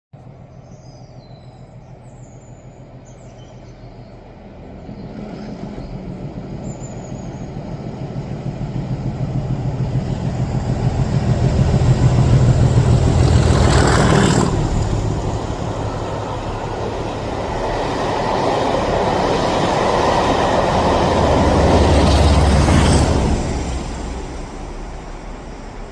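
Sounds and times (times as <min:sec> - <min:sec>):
diesel locomotive passing: 0:00.2 - 0:25.9
birds chirping: 0:00.3 - 0:08.3.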